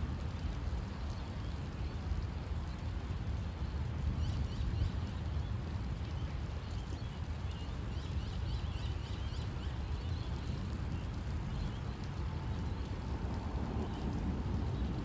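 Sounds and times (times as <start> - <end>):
storm low rumble: 12.6 - 15.0.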